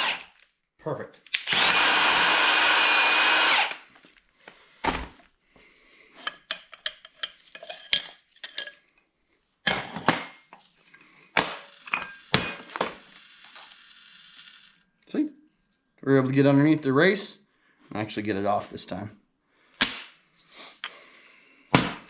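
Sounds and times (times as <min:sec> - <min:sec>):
power tool running: 0:00.0 - 0:00.3, 0:01.4 - 0:03.8
metallic clinks and knocks: 0:10.5 - 0:13.9.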